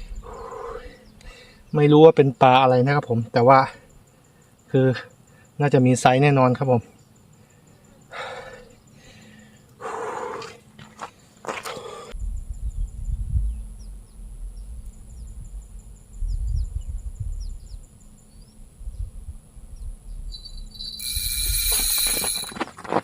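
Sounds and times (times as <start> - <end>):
shrill insect buzz: 11.8 - 19.1, 19.7 - 22.6
wind buffeting microphone: 12.2 - 22.4
faint high bird chirps: 19.7 - 22.4.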